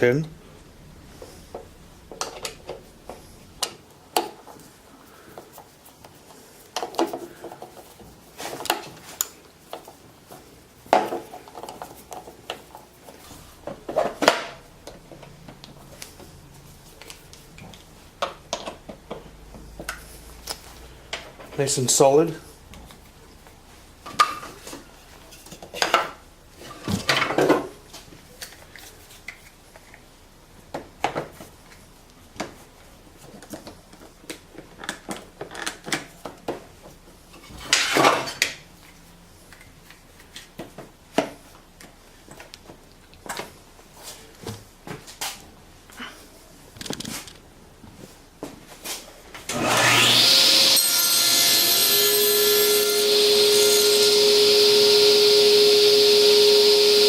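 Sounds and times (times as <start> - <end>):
table saw motor whine: 49.5 - 57.0.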